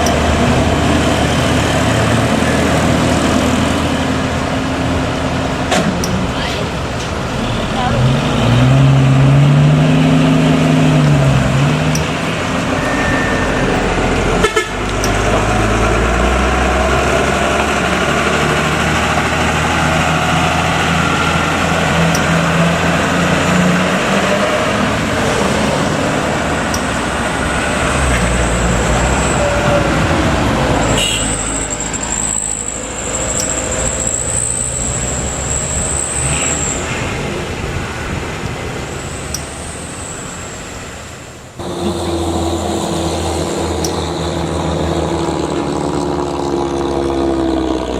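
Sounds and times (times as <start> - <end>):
truck engines running: 0.0 - 47.9
vehicles passing: 0.0 - 47.9
vehicle horn: 12.7 - 15.8, 30.8 - 32.7.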